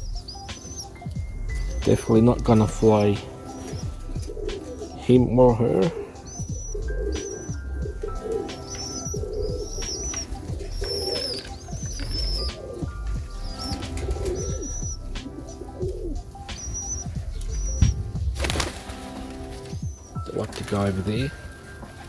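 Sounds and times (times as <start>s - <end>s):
high chirps: 0.0s - 22.0s
pigeons cooing: 0.0s - 22.0s
sharp knock: 17.8s - 18.4s.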